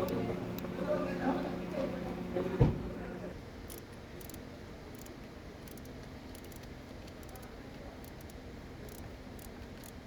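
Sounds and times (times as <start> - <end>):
metallic clicks of tools: 3.6 - 10.0.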